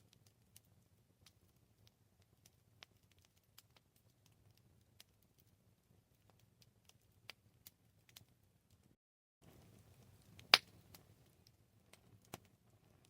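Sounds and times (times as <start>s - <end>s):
campfire crackles and pops: 0.0s - 13.0s
low steady fire rumble: 0.0s - 13.0s.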